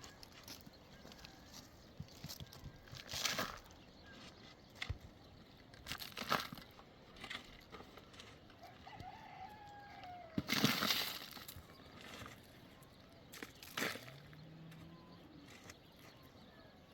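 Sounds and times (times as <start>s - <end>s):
rooster crowing: 8.6s - 10.5s.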